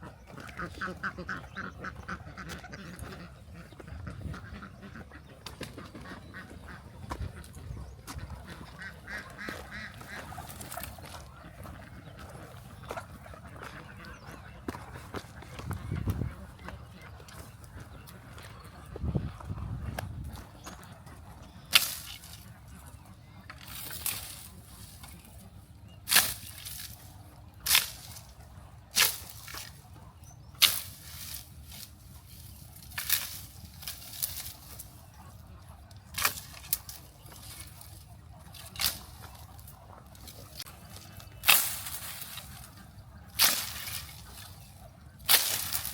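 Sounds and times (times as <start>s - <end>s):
ducks calling: 0.0s - 45.9s.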